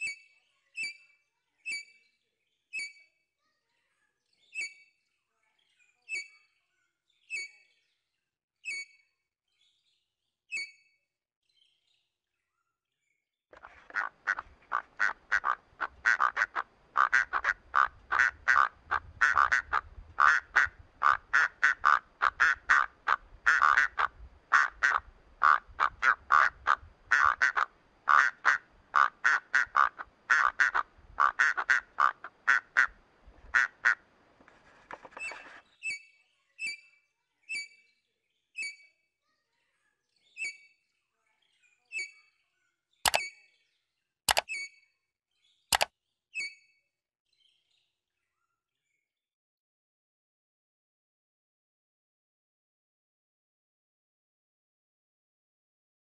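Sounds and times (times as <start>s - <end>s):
sharp high bird chirps: 4.6s - 4.9s, 10.5s - 11.0s.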